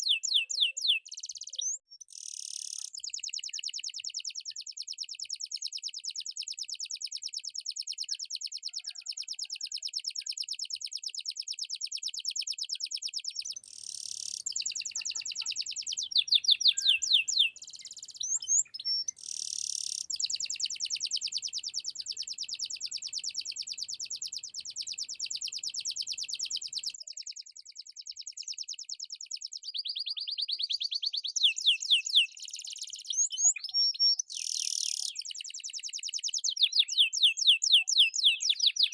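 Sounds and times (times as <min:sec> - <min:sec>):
canary singing: 0:00.0 - 0:03.7, 0:12.8 - 0:27.0, 0:29.7 - 0:38.9.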